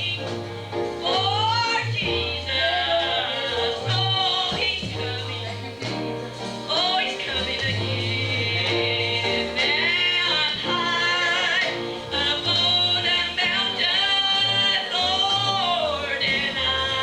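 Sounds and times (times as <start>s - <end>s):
gospel singing: 0.0s - 17.0s.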